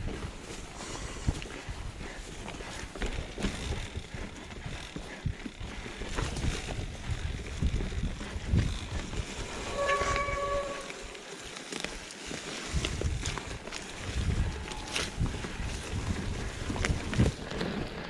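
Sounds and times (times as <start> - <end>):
bike rattling over rough trail: 0.0 - 18.0
pitched squeal: 9.5 - 11.2.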